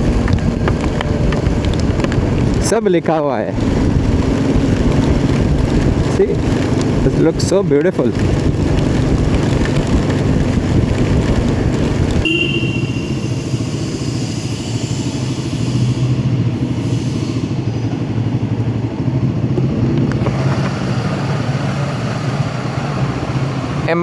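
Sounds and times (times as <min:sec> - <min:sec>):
motorcycle engine running: 0:00.0 - 0:14.4, 0:18.5 - 0:24.0
wind noise: 0:00.0 - 0:23.9
road noise: 0:00.0 - 0:24.0
brief high tone: 0:12.2 - 0:13.4.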